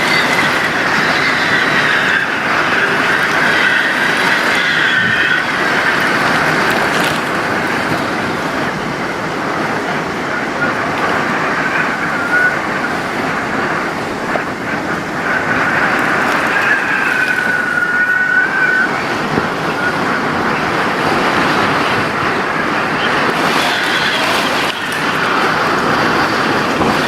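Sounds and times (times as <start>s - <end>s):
heavy rain: 0.0s - 27.0s
storm wind: 0.0s - 27.0s
faint wavering whistle: 10.6s - 13.8s, 15.2s - 20.6s.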